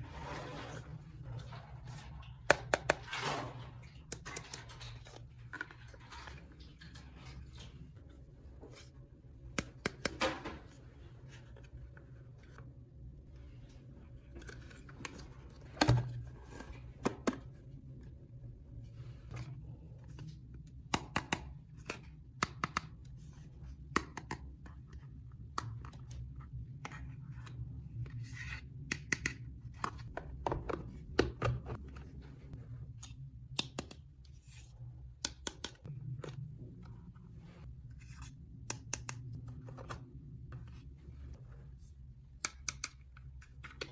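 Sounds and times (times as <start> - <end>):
low steady hum: 21.5 - 43.9.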